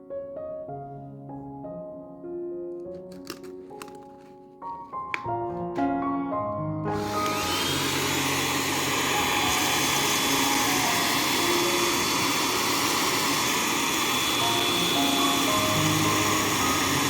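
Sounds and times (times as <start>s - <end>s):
background music: 0.0s - 17.0s
hair dryer blowing: 6.9s - 17.0s.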